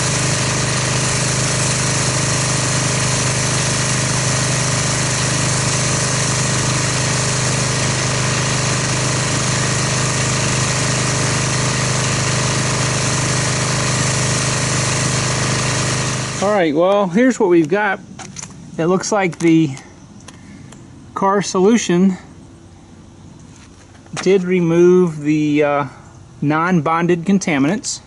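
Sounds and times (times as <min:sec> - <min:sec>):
pressure washer spraying: 0:00.0 - 0:16.6.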